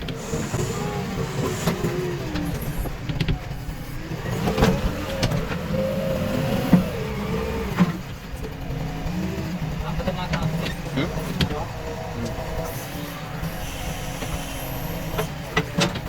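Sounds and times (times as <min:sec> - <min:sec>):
diesel engine working under load: 0:00.0 - 0:16.0.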